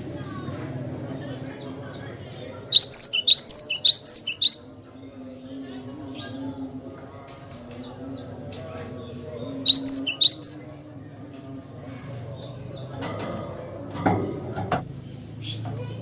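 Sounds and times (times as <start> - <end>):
faint bird chirps: 1.8 - 4.8, 9.6 - 10.7
bird whistled song: 2.7 - 4.7, 9.6 - 10.7.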